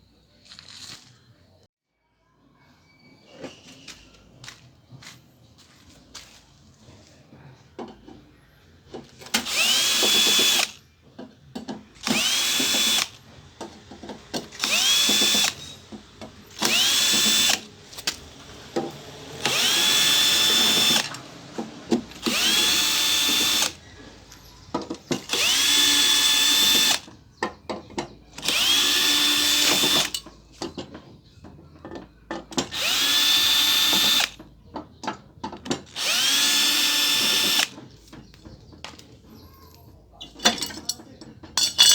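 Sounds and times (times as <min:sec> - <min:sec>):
small electric motor whining: 0:09.4 - 0:10.8, 0:12.0 - 0:13.3, 0:14.4 - 0:23.8, 0:25.3 - 0:27.1, 0:28.4 - 0:30.1, 0:32.7 - 0:34.4, 0:35.9 - 0:37.8.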